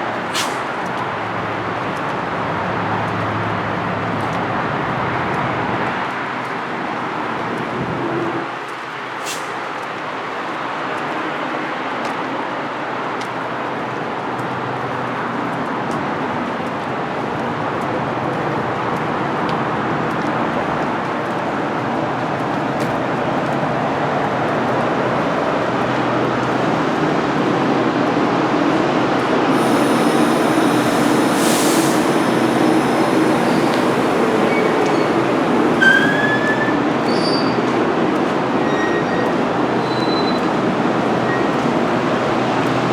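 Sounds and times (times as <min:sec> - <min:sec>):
train rumbling on rails: 0:00.0 - 0:25.6, 0:26.4 - 0:42.9
high-pitched wheel squeals: 0:29.6 - 0:37.6.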